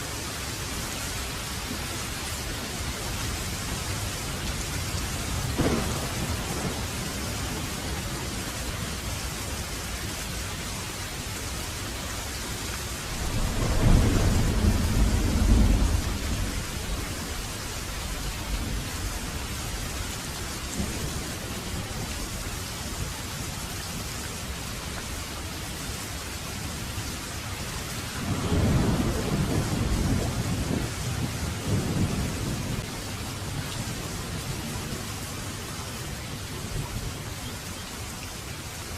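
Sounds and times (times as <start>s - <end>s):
heavy rain falling: 0.0s - 38.9s
thunder rumbling: 2.8s - 9.3s, 13.0s - 22.5s, 27.8s - 35.1s.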